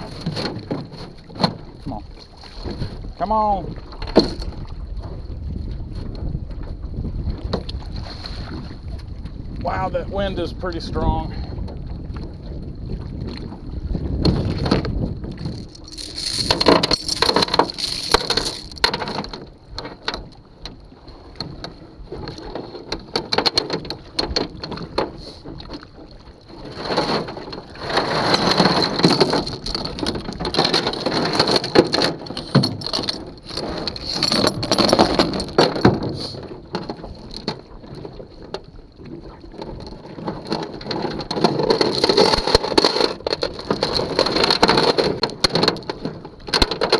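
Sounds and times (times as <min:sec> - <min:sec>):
strong wind gusting on microphone: 0:01.8 - 0:20.4
sharp clicks and knocks: 0:15.5 - 0:20.4, 0:21.4 - 0:25.8, 0:26.8 - 0:37.6, 0:39.6 - 0:46.9.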